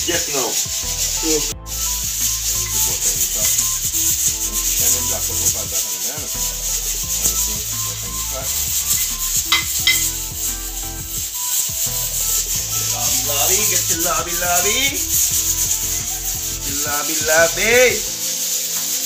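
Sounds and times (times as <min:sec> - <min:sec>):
butter and garlic frying: 0:00.0 - 0:19.0
metal spoon scraping pan: 0:08.8 - 0:10.2.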